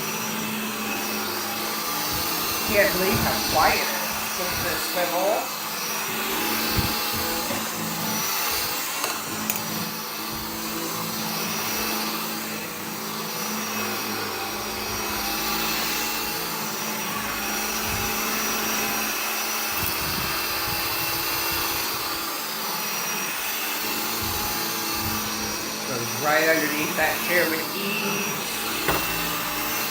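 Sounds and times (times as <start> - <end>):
cordless vacuum running: 0.0 - 29.9
light knocks: 28.8 - 29.2.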